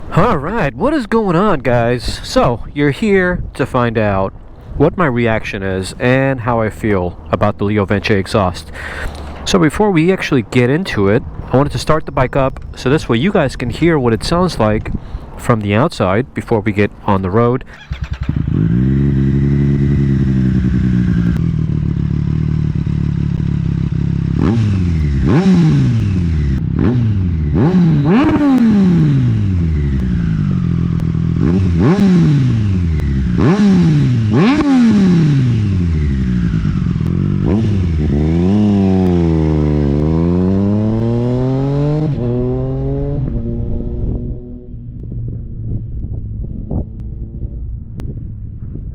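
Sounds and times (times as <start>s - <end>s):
motorcycle engine starting and revving: 16.4s - 48.9s.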